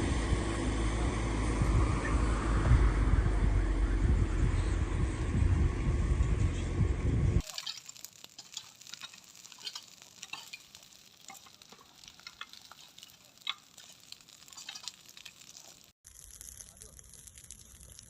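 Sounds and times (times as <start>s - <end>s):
loud low engine rumble: 0.0s - 7.4s
smouldering debris crackling: 7.4s - 18.0s.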